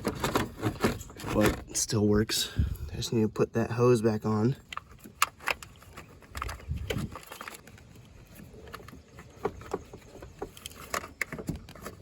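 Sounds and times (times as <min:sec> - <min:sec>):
clicks and knocks of handled parts: 0:04.6 - 0:12.0.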